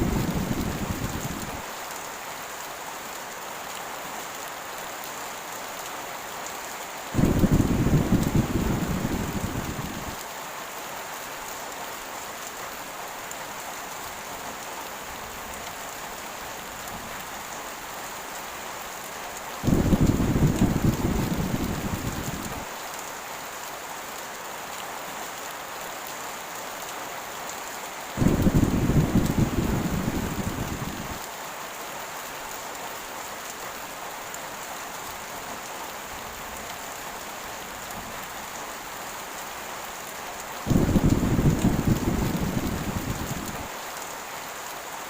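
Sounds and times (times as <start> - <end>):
heavy rain: 0.0 - 45.0
thunder rolling: 7.2 - 10.2, 19.6 - 22.6, 28.2 - 31.2, 40.7 - 43.7.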